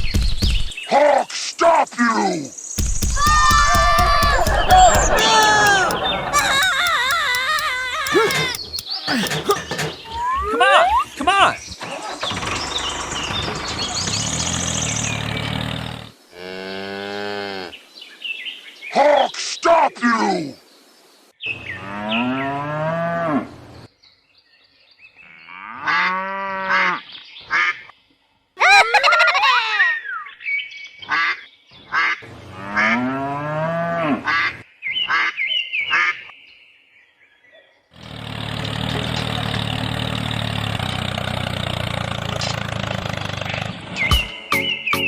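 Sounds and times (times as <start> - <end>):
steady machine noise: 2.8 - 10.1.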